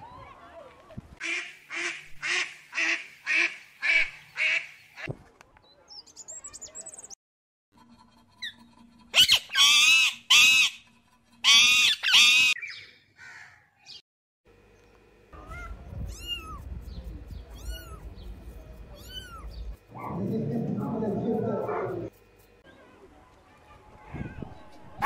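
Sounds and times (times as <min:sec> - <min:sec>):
animal calls high-pitched wavering: 0:08.5 - 0:10.8, 0:11.4 - 0:12.7.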